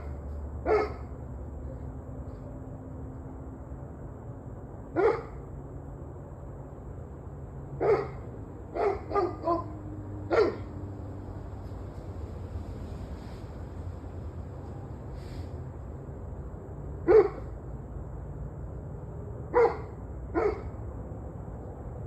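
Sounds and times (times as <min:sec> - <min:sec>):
dog barking: 0:00.0 - 0:01.1, 0:04.9 - 0:05.4, 0:07.8 - 0:10.7, 0:17.0 - 0:17.5, 0:19.5 - 0:20.8
steady low hum: 0:00.0 - 0:22.0.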